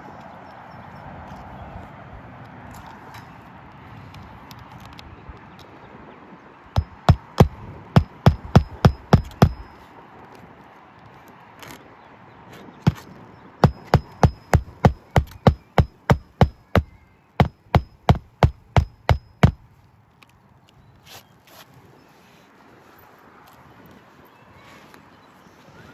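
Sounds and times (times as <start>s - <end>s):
hammer striking nails: 6.8s - 9.7s, 12.9s - 19.6s.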